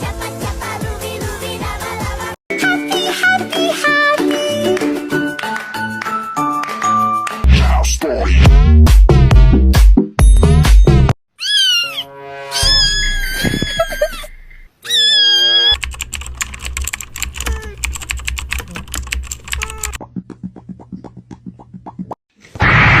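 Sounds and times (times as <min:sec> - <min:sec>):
short pitched calls: 0:11.4 - 0:15.8
computer keyboard typing: 0:15.7 - 0:20.0.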